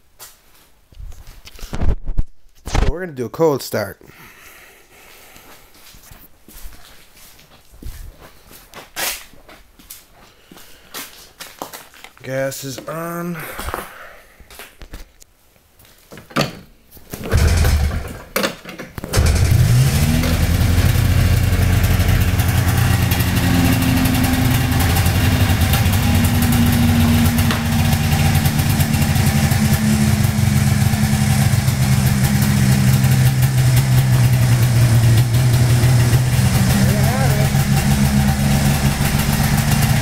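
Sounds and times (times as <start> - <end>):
motorcycle engine cranking: 17.2 - 40.0
motorcycle engine idling: 17.3 - 18.1, 19.2 - 40.0.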